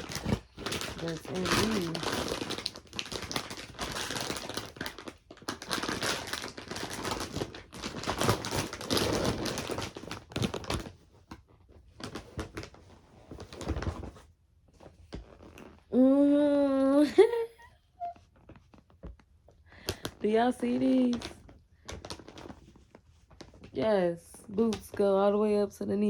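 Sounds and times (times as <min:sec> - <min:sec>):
plastic package crinkling: 0:00.0 - 0:14.2, 0:19.8 - 0:23.8.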